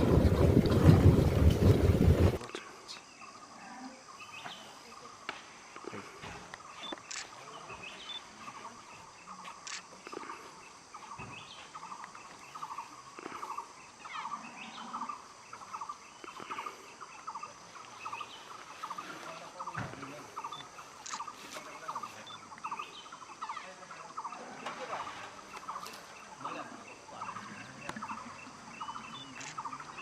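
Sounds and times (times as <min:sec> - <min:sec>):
steady background hiss: 0:00.0 - 0:30.0
birds rapid chattering calls: 0:15.1 - 0:24.4, 0:25.0 - 0:30.0.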